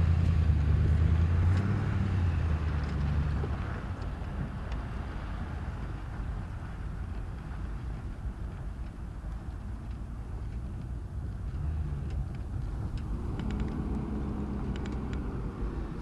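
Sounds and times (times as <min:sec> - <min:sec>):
vehicle engine hum: 0:00.0 - 0:07.9, 0:09.8 - 0:16.0
tyre and road rumble: 0:10.6 - 0:16.0.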